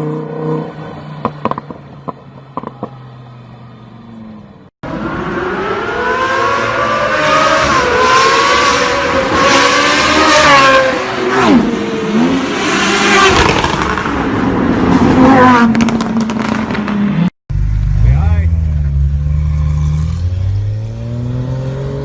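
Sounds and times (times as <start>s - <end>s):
car engine revving: 4.8s - 22.0s.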